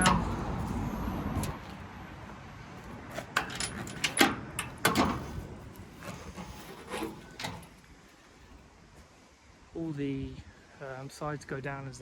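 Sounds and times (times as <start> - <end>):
metallic clicks and clanks: 0.0 - 0.4, 3.2 - 5.4.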